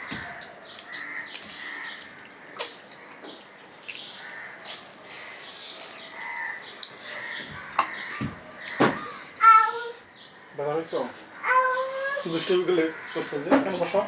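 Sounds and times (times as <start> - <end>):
man chewing food: 1.6 - 8.1
wet mouth clicks and smacks: 2.2 - 3.2.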